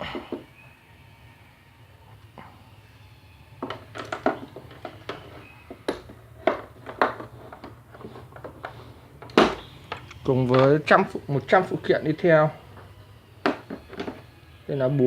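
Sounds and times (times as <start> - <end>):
tools and plastic clattering: 3.6 - 11.1, 12.7 - 14.3.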